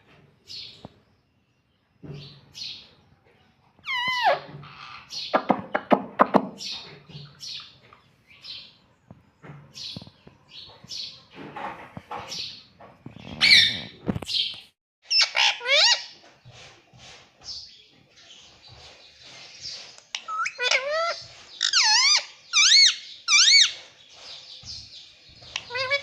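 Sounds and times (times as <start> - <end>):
parrot squawking and calling: 3.8 - 5.3, 13.4 - 13.9, 15.1 - 16.2, 20.2 - 23.8, 25.5 - 26.0.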